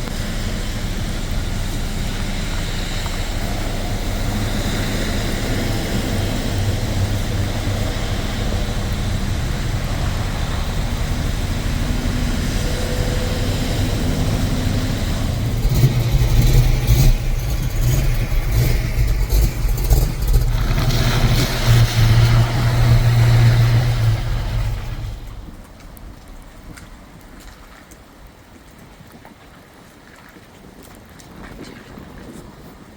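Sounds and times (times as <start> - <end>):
car engines rumbling and revving: 0.0 - 26.2.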